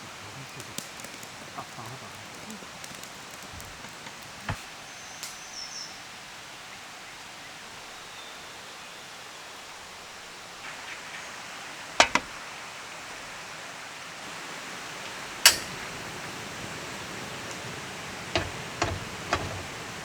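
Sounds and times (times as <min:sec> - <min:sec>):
forest stream rushing: 0:06.0 - 0:20.0.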